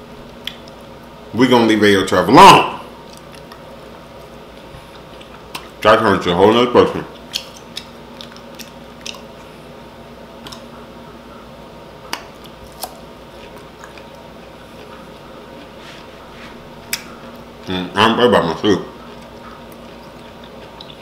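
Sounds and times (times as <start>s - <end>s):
faint steady hum: 0.0s - 21.0s
person chewing food: 0.2s - 1.1s, 3.0s - 5.8s, 7.1s - 9.8s, 10.4s - 11.2s, 11.9s - 17.8s, 18.9s - 21.0s.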